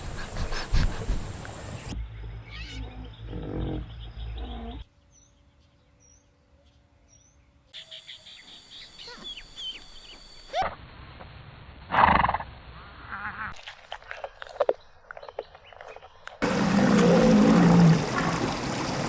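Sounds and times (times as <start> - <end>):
bird calls: 7.8 - 10.6, 14.7 - 19.0
high bird chirps: 7.8 - 10.6
loud rising bird call: 16.4 - 19.0.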